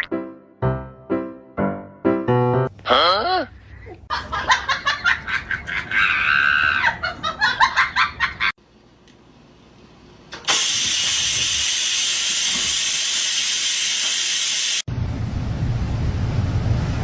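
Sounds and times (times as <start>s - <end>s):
loud steady hiss: 10.5s - 14.9s.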